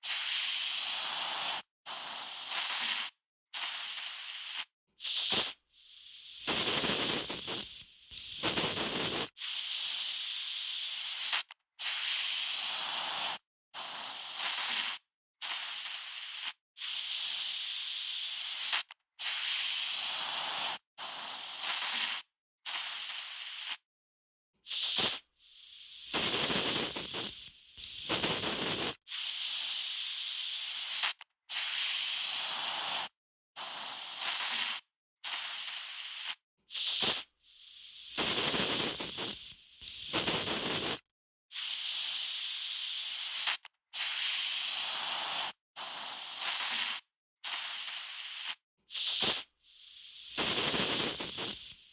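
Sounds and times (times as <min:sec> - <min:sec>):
aerosol spray can hissing: 0:00.0 - 0:23.8, 0:24.6 - 0:51.9.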